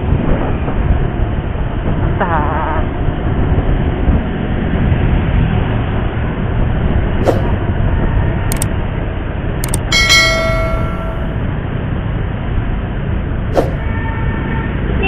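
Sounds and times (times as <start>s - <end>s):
sharp clicks: 9.6s - 10.5s.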